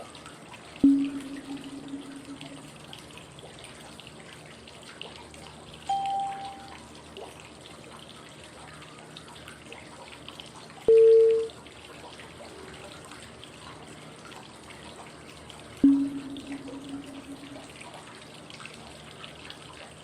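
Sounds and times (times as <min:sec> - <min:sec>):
flowing water: 0:00.0 - 0:20.0
short pure cue tone: 0:00.8 - 0:02.7, 0:05.9 - 0:06.7, 0:10.9 - 0:11.5, 0:15.8 - 0:17.8.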